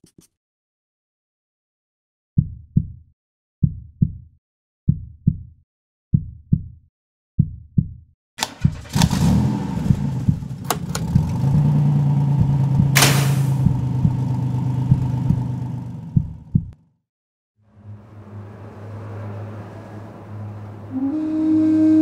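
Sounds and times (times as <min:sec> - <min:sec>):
heartbeat double thumps: 0:02.4 - 0:03.0, 0:03.6 - 0:04.3, 0:04.9 - 0:05.5, 0:06.1 - 0:06.8, 0:07.4 - 0:08.0, 0:09.8 - 0:11.7, 0:12.3 - 0:16.8
car engine starting and idling: 0:08.4 - 0:16.6
sharp clicks: 0:13.0 - 0:13.6.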